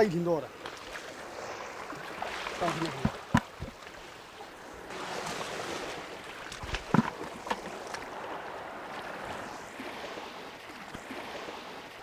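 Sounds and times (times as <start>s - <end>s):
sea water washing among rocks: 0.5s - 12.0s
sharp knocks: 2.8s - 3.8s.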